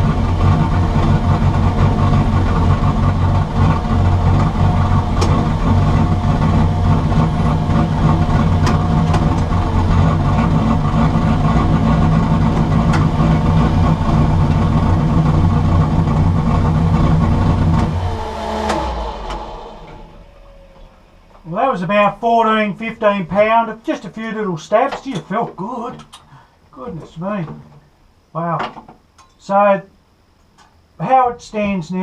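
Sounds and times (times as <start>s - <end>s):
car engine revving: 0.0s - 22.2s
turbo whine: 0.0s - 32.0s.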